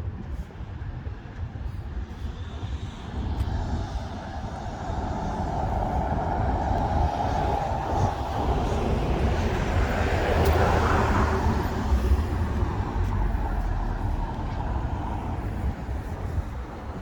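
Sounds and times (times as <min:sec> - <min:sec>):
vehicle passing with engine rumble: 0:04.9 - 0:17.0.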